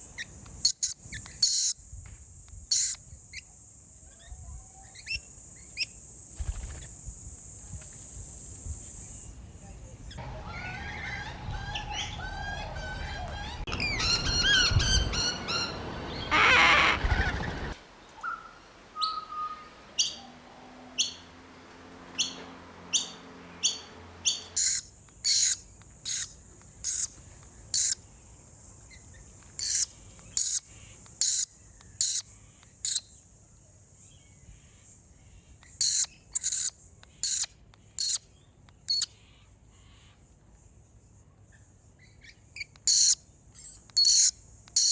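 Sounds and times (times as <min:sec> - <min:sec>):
baby birds squawking and chirping: 0:00.7 - 0:01.8, 0:02.7 - 0:03.0, 0:18.2 - 0:21.4, 0:22.1 - 0:28.0, 0:29.5 - 0:33.0, 0:35.7 - 0:38.2, 0:42.6 - 0:44.9.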